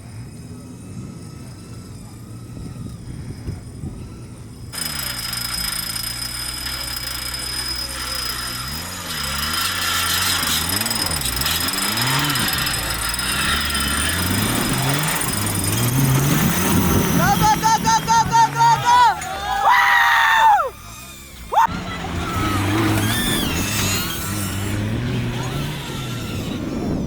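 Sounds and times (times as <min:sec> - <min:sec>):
off-road vehicle engine revving: 0:00.0 - 0:27.0.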